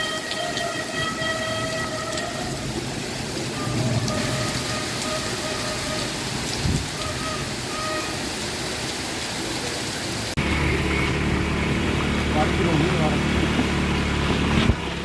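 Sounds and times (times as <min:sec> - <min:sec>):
heavy rain: 0:00.0 - 0:15.0
low engine hum: 0:10.4 - 0:15.0.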